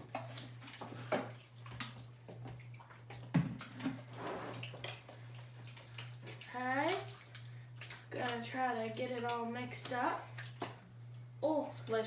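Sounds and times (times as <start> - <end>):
hands squelching slime in tub: 4.5 - 10.8.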